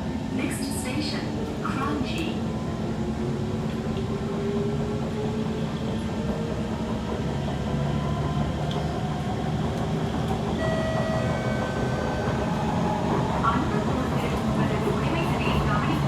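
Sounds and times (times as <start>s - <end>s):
metro train rumble and motor whine: 0.0s - 16.0s
higher whine tones: 10.6s - 12.9s.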